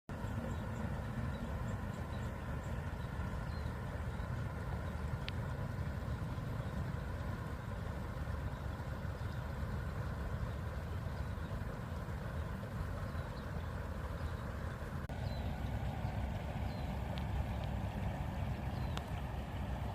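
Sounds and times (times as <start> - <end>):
river flowing: 0.1 - 19.9.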